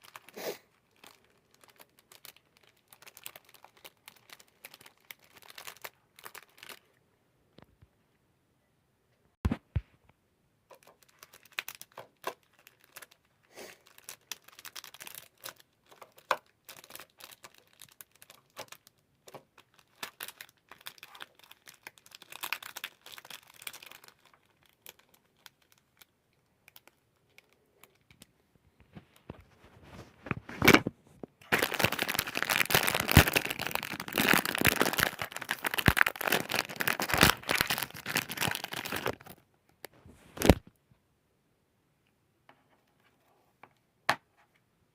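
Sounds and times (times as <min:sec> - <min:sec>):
plastic tearing: 0:00.0 - 0:06.9, 0:10.7 - 0:26.1, 0:30.2 - 0:39.4, 0:40.3 - 0:40.7
plastic packaging crinkling: 0:00.0 - 0:07.0, 0:10.7 - 0:28.3, 0:28.9 - 0:40.7.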